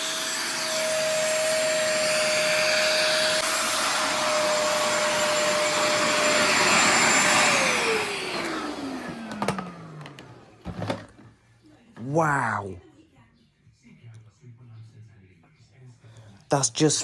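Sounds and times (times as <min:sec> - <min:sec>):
suction motor whine: 0:00.0 - 0:11.0.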